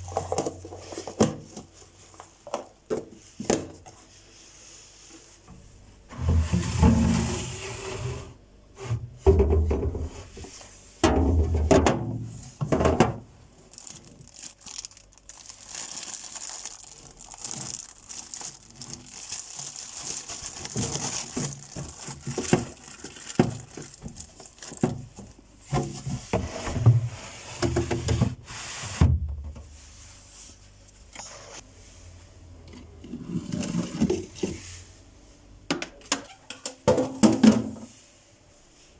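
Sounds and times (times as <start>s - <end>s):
plastic rustling and scraping: 0.0s - 9.0s, 11.6s - 29.0s.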